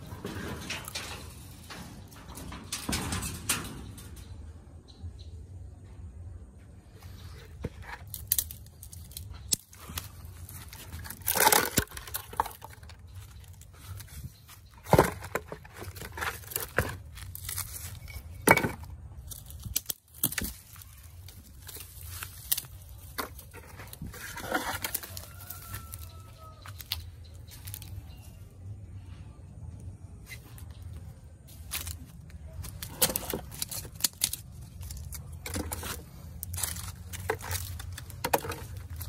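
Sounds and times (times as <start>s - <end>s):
crackling scraping bursts: 7.0s - 18.4s, 30.2s - 39.0s.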